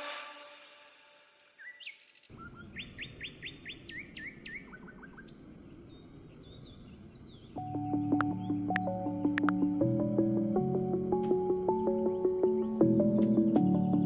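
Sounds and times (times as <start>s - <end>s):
bird chirping: 1.6s - 9.8s.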